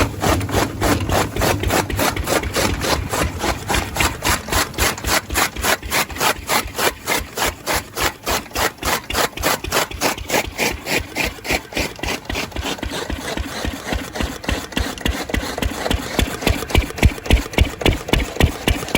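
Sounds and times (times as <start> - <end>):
old stationary engine running: 0.0 - 18.9.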